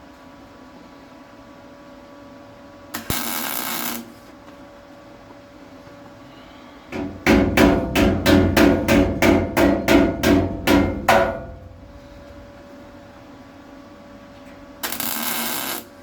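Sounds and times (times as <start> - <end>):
hammer tapping sheet steel: 7.0 - 12.7.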